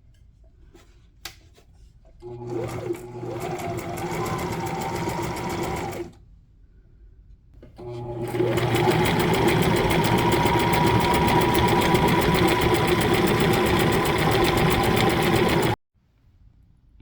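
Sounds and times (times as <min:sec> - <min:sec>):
sewing machine stitching: 0:02.2 - 0:06.2, 0:07.8 - 0:15.8.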